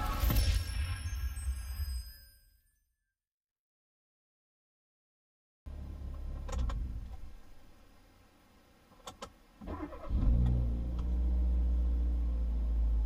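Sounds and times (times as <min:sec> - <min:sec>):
car engine cranking and idling: 0:05.7 - 0:07.6, 0:09.0 - 0:13.0.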